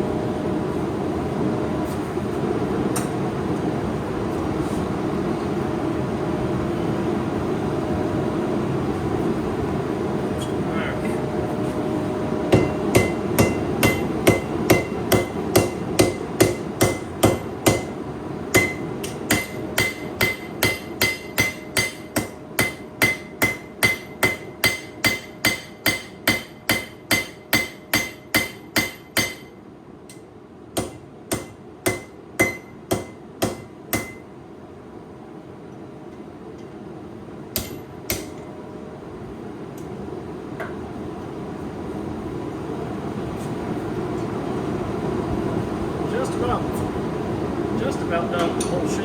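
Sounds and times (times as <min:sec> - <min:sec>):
hammer striking steel on anvil: 0:12.5 - 0:34.3, 0:37.5 - 0:38.6, 0:48.4 - 0:49.0.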